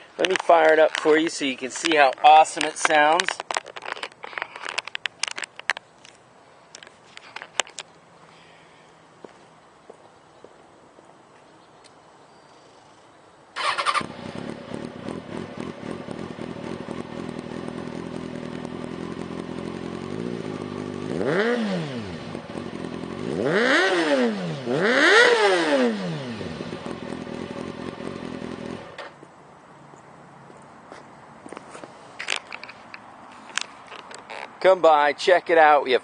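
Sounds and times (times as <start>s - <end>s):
motorcycle engine idling and revving: 13.6s - 29.2s.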